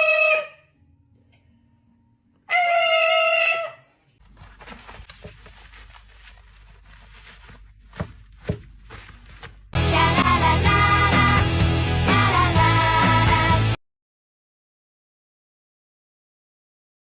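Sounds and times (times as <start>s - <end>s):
parrot call: 0.0s - 0.7s, 2.5s - 4.0s
background noise: 0.0s - 9.8s.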